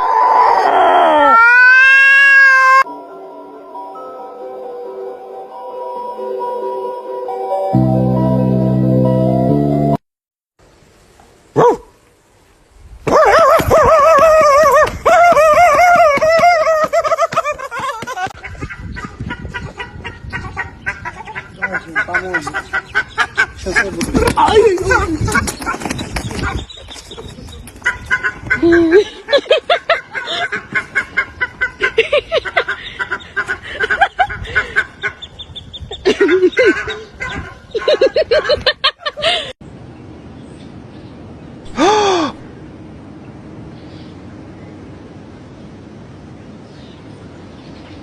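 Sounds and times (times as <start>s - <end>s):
animal crying: 0.0s - 2.9s.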